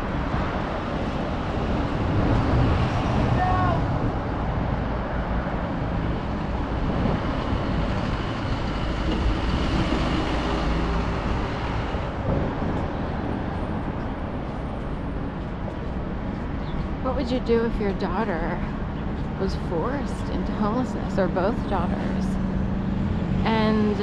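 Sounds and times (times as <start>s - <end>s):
rumble of passing vehicles: 0.0s - 24.0s.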